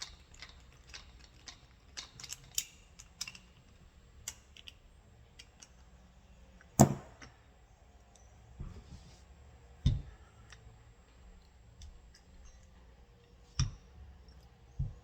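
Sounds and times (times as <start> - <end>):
metallic clicks of parts handled: 0.0 - 4.8.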